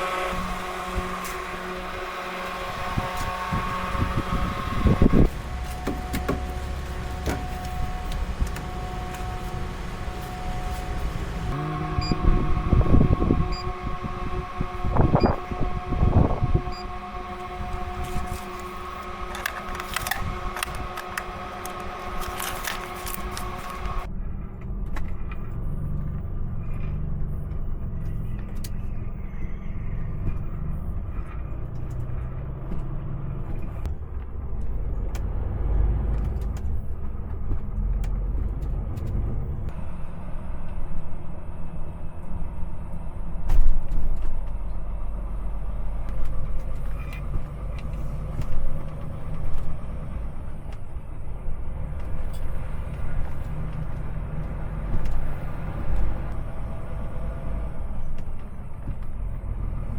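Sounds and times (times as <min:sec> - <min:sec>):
heavy truck engine rumble: 0:00.0 - 0:59.9
scattered clicks: 0:18.4 - 0:28.9.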